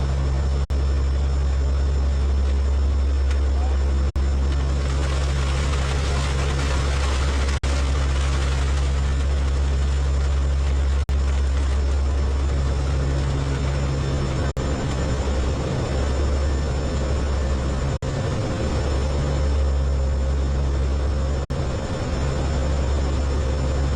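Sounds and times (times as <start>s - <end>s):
aircraft engines droning: 0.0s - 23.9s.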